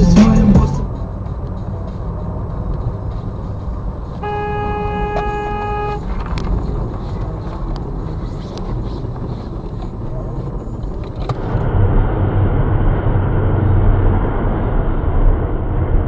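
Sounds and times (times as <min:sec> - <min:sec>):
vehicle rumble in traffic: 0:00.0 - 0:16.0
car horn: 0:04.1 - 0:06.6.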